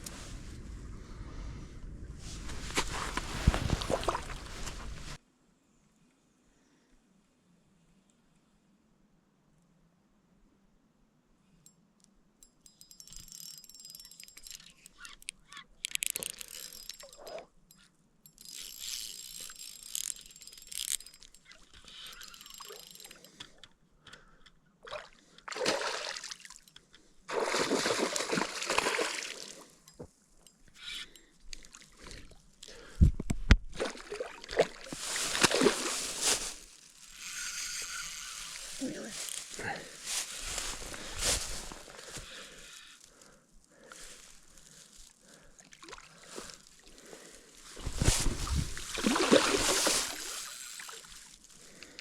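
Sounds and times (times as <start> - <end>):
water splashing and sloshing: 2.3 - 5.2, 24.8 - 26.6, 27.3 - 29.6, 33.8 - 36.5, 47.8 - 51.3.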